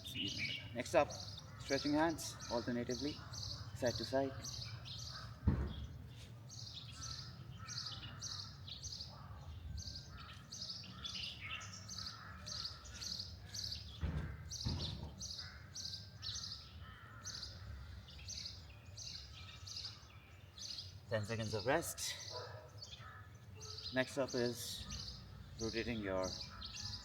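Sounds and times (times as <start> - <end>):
small birds chirping: 0.0 - 27.0
dull thumps: 5.4 - 6.0.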